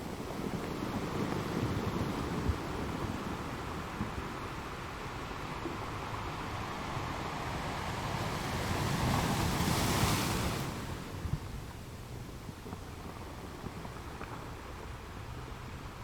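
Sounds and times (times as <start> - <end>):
ocean waves washing ashore: 0.0 - 12.0.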